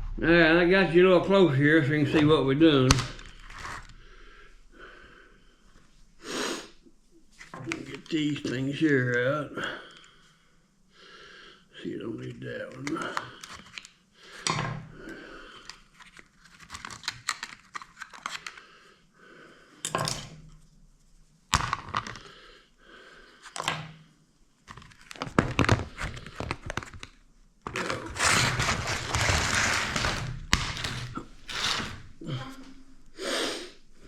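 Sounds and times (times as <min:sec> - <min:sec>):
tools clicking and scraping metal: 0:27.7 - 0:32.2.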